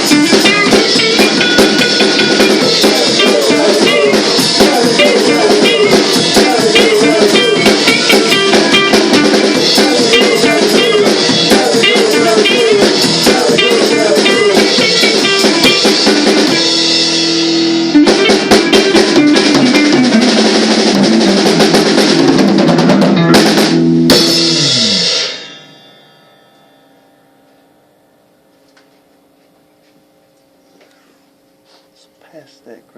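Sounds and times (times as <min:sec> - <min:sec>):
drum kit: 0:00.0 - 0:25.9
rock band playing live: 0:00.0 - 0:26.1
electric guitar: 0:00.0 - 0:27.9.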